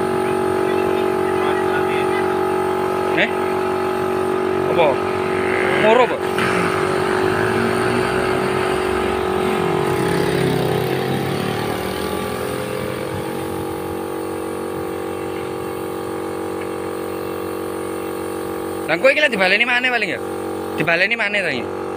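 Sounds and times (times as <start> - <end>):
motor humming: 0.0 - 19.0.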